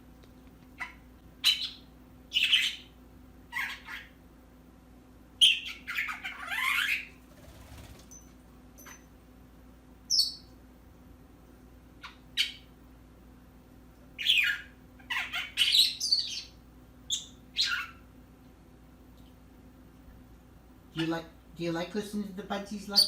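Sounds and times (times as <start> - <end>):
pet bird chirping and squawking: 0.7 - 4.2, 5.4 - 7.2, 10.1 - 10.5, 12.0 - 12.7, 14.2 - 18.1.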